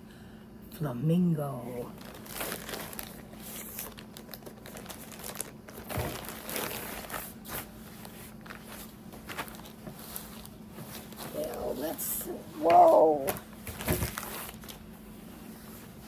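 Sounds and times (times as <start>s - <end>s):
packaging crinkling and crumpling: 1.9s - 11.8s, 12.6s - 14.9s.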